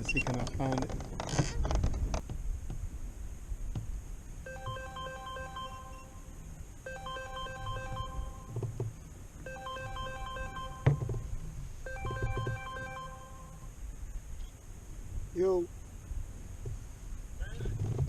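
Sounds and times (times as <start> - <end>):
mobile phone ringtone beeping: 4.5 - 8.6, 9.4 - 11.1, 11.8 - 13.7.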